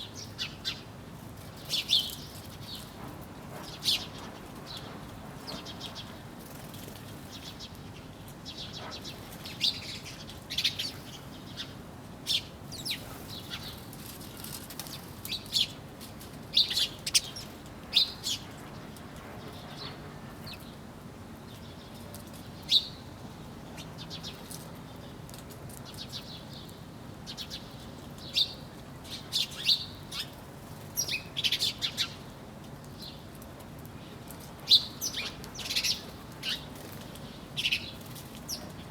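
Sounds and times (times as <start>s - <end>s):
songbirds chirping: 16.5s - 38.9s.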